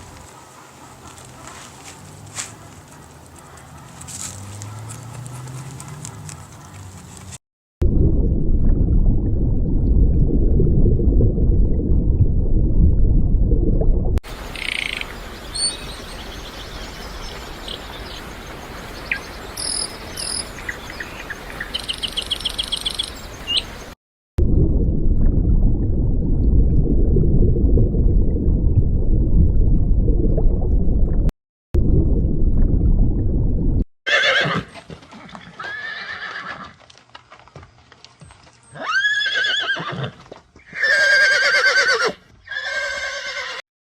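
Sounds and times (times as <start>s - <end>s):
heavy horse hoofbeats: 2.6s - 7.4s, 36.3s - 38.9s
horses whinnying: 34.1s - 34.8s, 35.4s - 36.8s, 38.7s - 43.6s.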